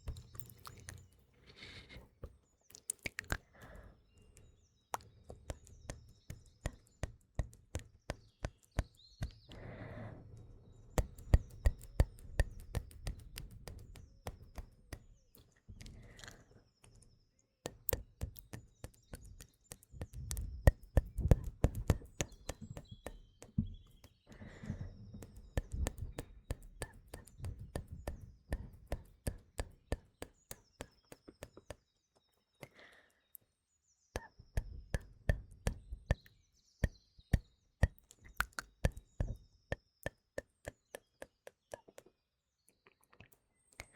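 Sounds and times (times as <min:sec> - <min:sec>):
faint birdsong chirps: 0:00.0 - 0:43.9
wet mouth clicks and smacks: 0:00.1 - 0:01.2, 0:01.9 - 0:03.8, 0:37.8 - 0:39.4
person breathing: 0:00.4 - 0:02.3, 0:03.4 - 0:04.1, 0:09.5 - 0:10.4, 0:24.3 - 0:25.1, 0:32.6 - 0:33.3.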